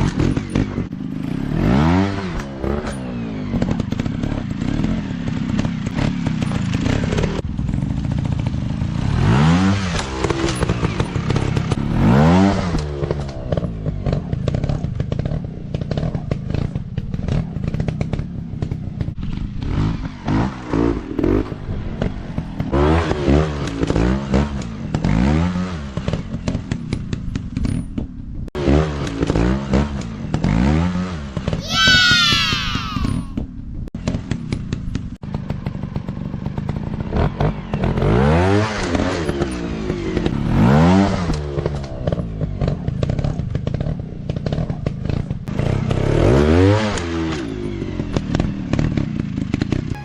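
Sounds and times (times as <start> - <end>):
dirt bike engines revving: 28.6 - 33.4.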